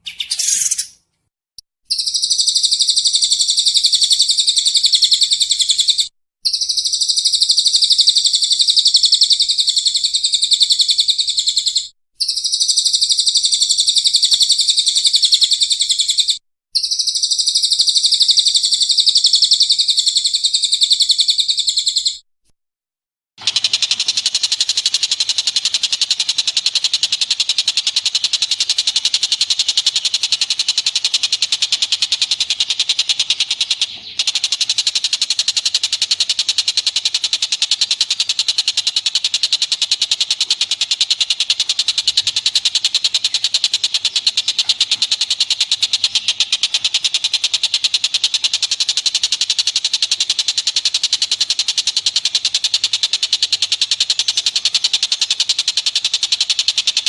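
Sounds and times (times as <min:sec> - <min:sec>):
harsh buzzing bird chatter: 0:00.0 - 0:01.0, 0:01.9 - 0:22.2, 0:23.4 - 0:57.0
high-pitched bird trill: 0:00.0 - 0:01.0, 0:01.9 - 0:22.2.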